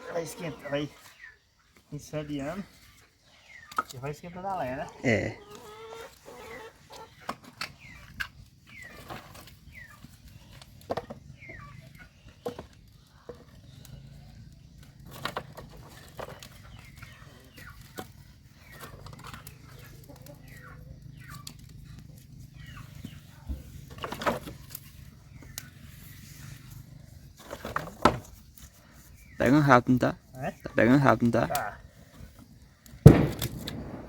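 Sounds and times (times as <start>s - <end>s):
chickens clucking: 0.0s - 25.8s
bonfire crackling and popping: 31.4s - 34.0s.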